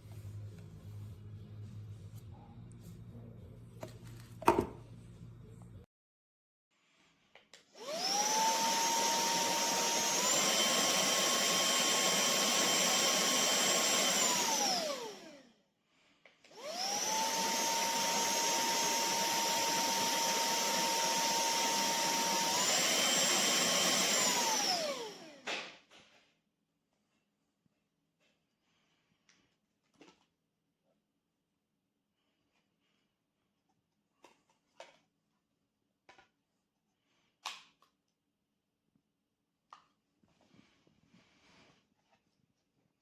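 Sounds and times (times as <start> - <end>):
handheld vacuum motor whine: 7.8 - 15.6, 16.4 - 25.7.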